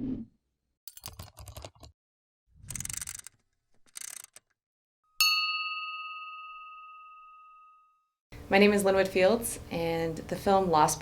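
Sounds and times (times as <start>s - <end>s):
bell ding: 5.2s - 8.2s.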